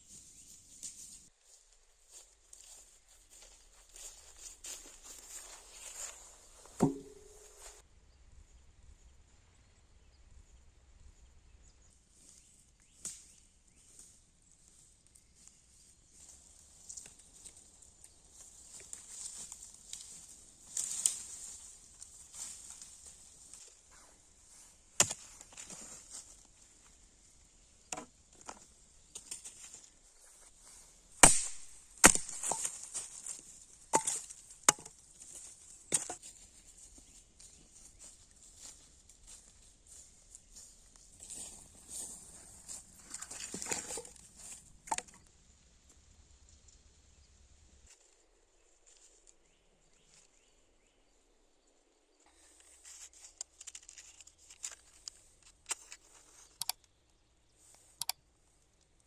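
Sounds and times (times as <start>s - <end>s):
sharp chopping blows: 6.8s - 7.5s, 31.2s - 32.5s.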